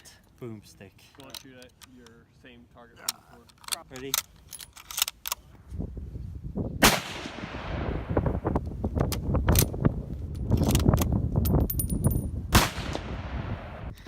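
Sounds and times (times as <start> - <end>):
rifle shots echoing: 6.8 - 8.1, 12.5 - 13.9.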